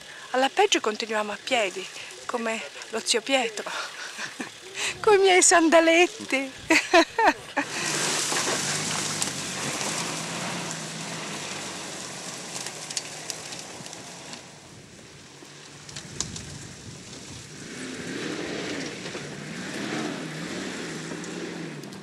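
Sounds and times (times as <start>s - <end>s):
suv engine revving: 6.1s - 22.0s.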